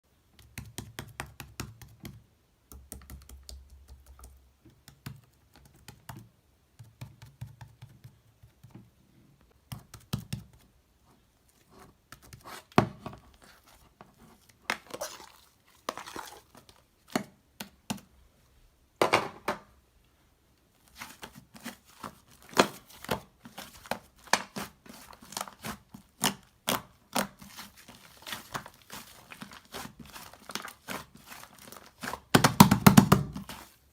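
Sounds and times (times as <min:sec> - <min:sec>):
paper crinkling: 0:20.8 - 0:33.9.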